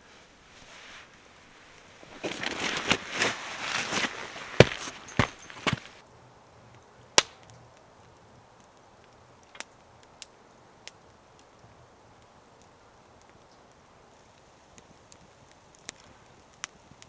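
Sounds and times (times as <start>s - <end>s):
campfire wood crackling and popping: 6.7s - 17.0s.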